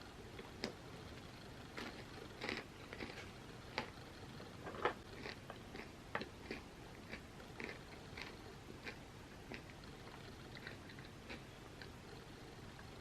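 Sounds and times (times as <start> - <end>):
chewing crunchy chips: 1.7 - 4.0, 5.0 - 12.1.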